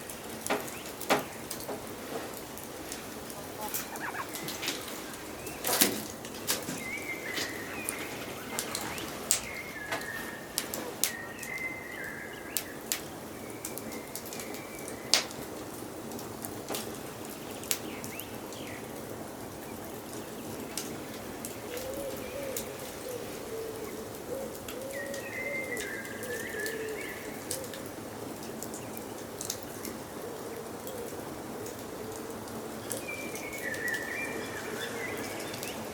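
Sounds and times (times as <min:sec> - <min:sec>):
birds singing: 0:02.7 - 0:15.2, 0:19.6 - 0:27.8, 0:32.8 - 0:35.9
low warbling bird call: 0:03.1 - 0:11.9
high whistled bird phrase: 0:03.4 - 0:05.7.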